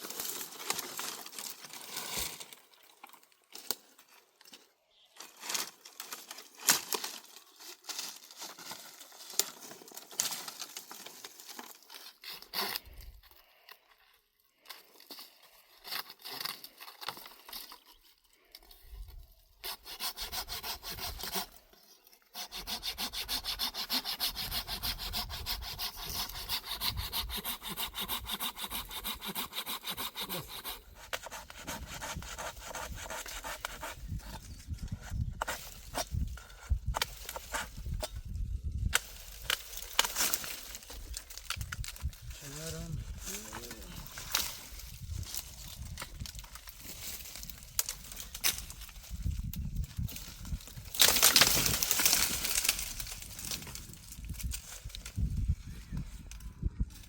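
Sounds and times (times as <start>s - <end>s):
wood being sawn: 19.6s - 21.6s, 22.3s - 34.4s.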